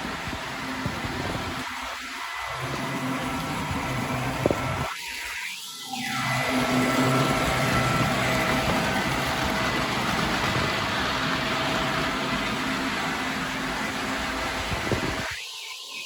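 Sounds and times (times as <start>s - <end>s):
model train rumbling: 6.6s - 15.4s.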